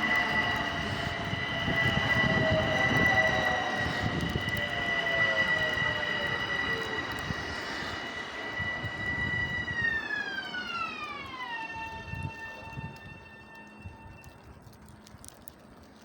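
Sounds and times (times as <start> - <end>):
train traction motors whining: 0.0 - 16.0
wheels rumbling on rail: 0.0 - 16.0
scattered clicks: 10.4 - 16.0.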